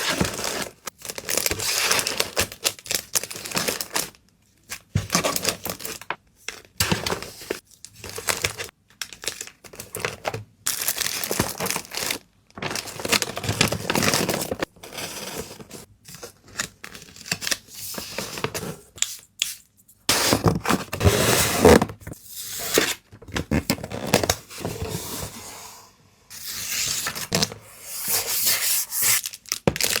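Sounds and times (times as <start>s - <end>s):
plastic and paper wrapping crinkling: 4.8s - 17.1s, 29.2s - 30.0s.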